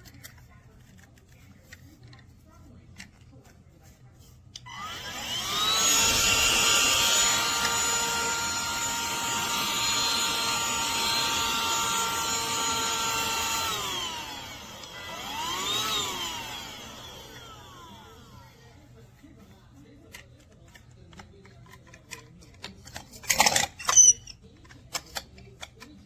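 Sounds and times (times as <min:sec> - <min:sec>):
handheld vacuum motor whining: 0:04.6 - 0:18.8, 0:22.6 - 0:24.4.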